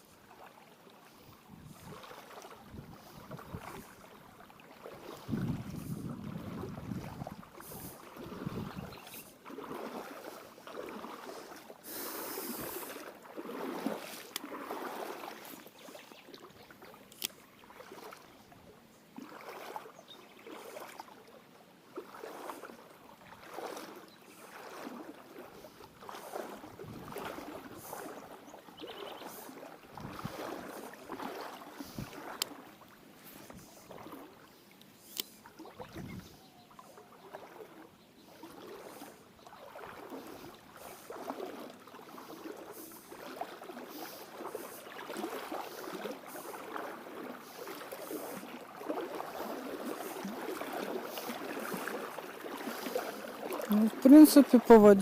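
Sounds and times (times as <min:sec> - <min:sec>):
wading through river water: 0:00.0 - 0:55.0.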